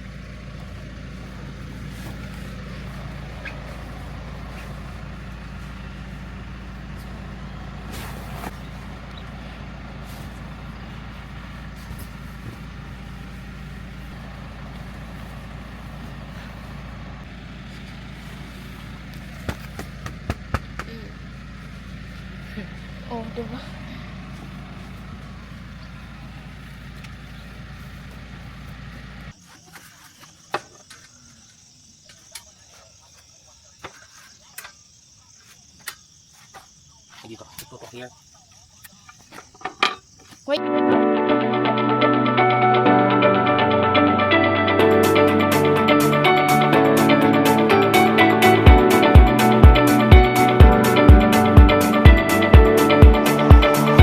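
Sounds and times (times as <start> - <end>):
motor vehicle engine droning: 0.0 - 29.4, 40.6 - 54.0
crickets chirring: 24.2 - 40.6.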